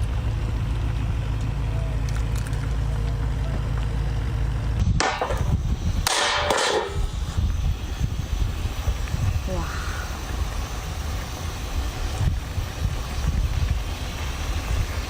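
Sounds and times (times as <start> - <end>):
harsh crackling noises: 0.0 - 4.8
boat engine droning: 0.0 - 15.0.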